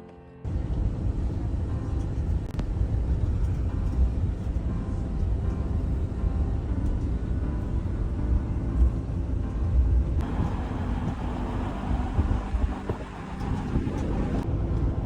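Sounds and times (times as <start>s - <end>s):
car engine and road rumble: 0.5s - 15.0s
road or wind hiss: 10.2s - 14.4s.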